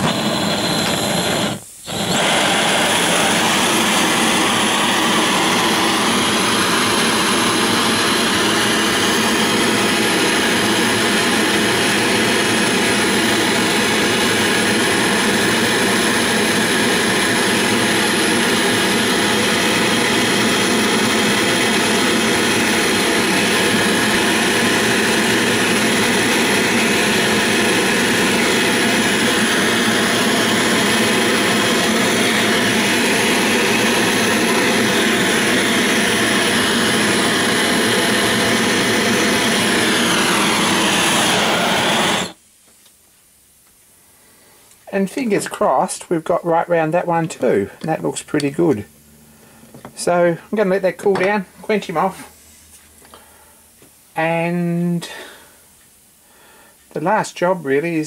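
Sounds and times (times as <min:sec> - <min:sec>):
gas torch roaring: 0:00.0 - 0:42.4.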